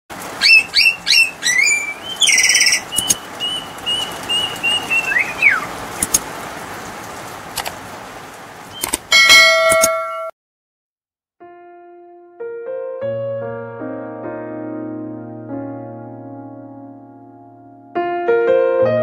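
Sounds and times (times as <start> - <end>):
songbird calling: 0.3 - 6.0
sharp clicks: 2.9 - 3.3, 6.0 - 6.3, 8.8 - 9.1.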